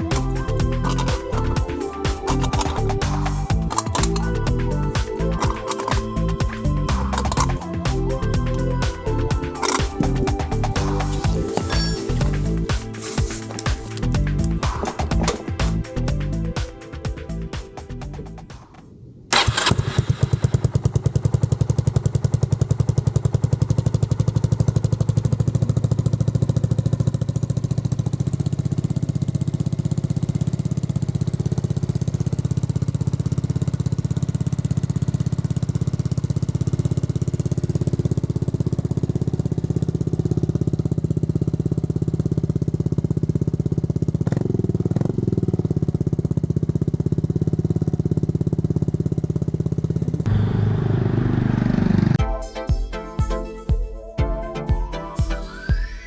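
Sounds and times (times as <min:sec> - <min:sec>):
scooter engine idling: 0:00.0 - 0:18.7, 0:20.4 - 0:53.3.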